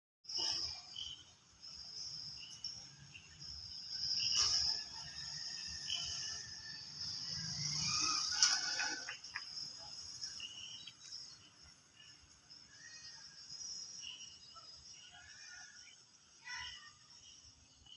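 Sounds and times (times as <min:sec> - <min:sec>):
bird chirps: 0:00.3 - 0:17.9
crickets trilling: 0:00.3 - 0:17.9.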